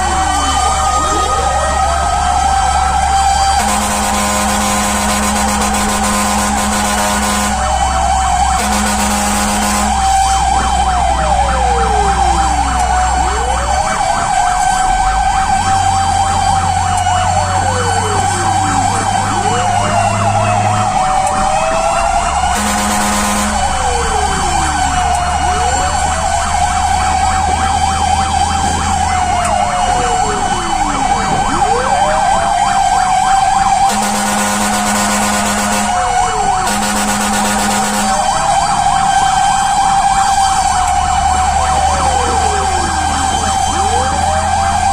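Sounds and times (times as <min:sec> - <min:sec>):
fire truck siren wailing: 0:00.0 - 0:44.9
truck engine rumbling: 0:00.0 - 0:44.9
truck horn blasts: 0:03.5 - 0:08.0, 0:08.6 - 0:10.4, 0:22.5 - 0:24.0, 0:33.9 - 0:38.5.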